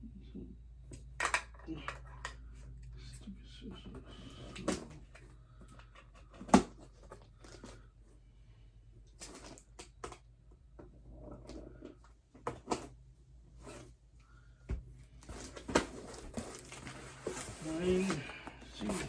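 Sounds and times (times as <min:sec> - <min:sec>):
packaging rustling: 0:15.2 - 0:19.0.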